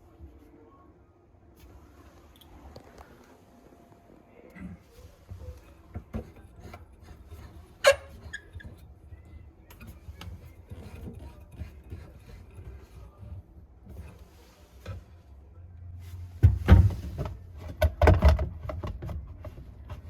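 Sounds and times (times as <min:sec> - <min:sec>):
rubbing and scraping: 0:05.0 - 0:15.2.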